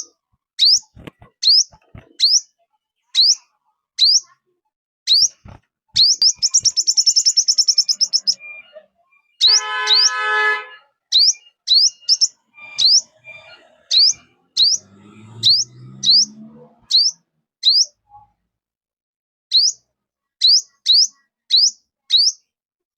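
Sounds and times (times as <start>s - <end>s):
sharp high bird chirps: 0.0s - 2.5s, 3.2s - 4.4s, 5.1s - 18.0s, 19.5s - 22.5s
harsh buzzy bird call: 9.4s - 17.9s
low bird call: 11.1s - 18.0s.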